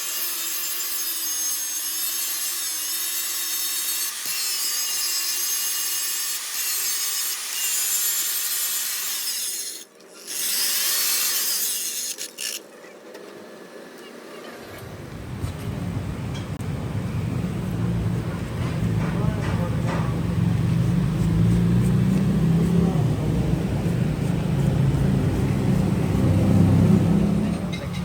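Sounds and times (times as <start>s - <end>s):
power tool rasping on metal: 0.0s - 12.7s, 20.6s - 27.1s.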